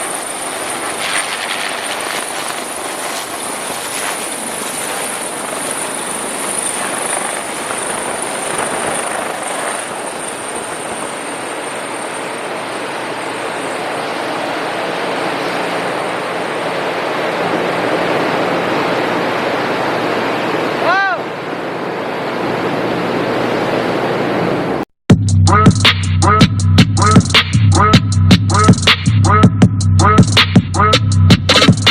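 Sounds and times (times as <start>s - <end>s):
helicopter turbine whine: 0.0s - 24.8s
steady rushing noise: 0.0s - 24.8s.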